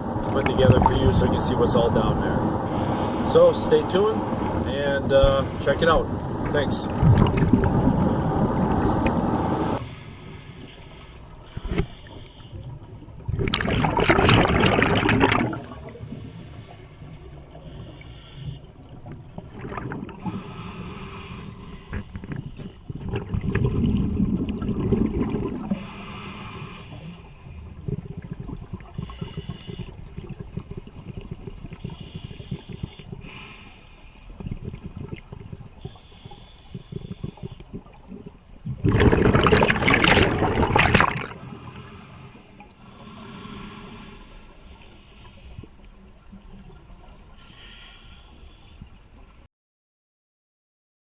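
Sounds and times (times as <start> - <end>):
regulator bubbles gurgling: 0.0 - 9.8, 12.6 - 16.5, 18.7 - 20.6, 21.7 - 33.5, 34.3 - 41.8
loud burst of bubbles: 13.3 - 15.8, 23.0 - 25.8, 38.7 - 41.4.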